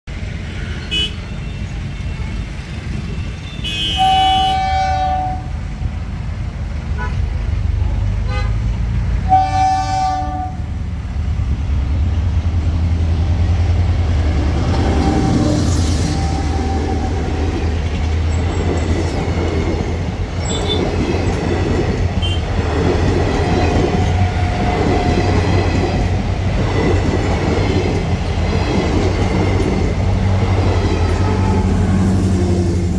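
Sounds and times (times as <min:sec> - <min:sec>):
coach wheels rumbling on track: 0:00.1 - 0:32.9
train horn blasts: 0:03.5 - 0:05.6, 0:08.2 - 0:10.7, 0:14.2 - 0:17.3, 0:22.2 - 0:22.5, 0:31.0 - 0:32.4.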